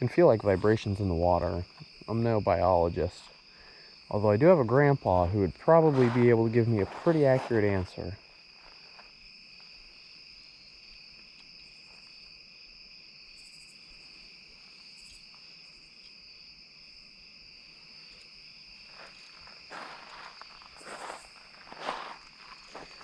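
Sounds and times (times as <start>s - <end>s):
crickets and insects trilling: 0.0s - 23.0s.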